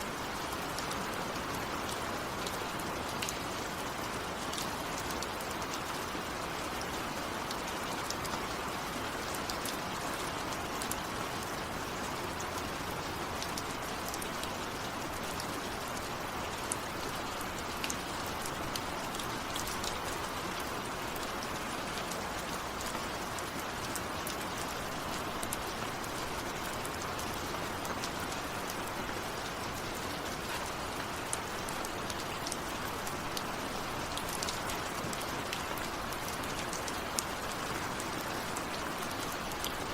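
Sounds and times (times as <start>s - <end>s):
raindrop ticks: 22.8s - 39.8s.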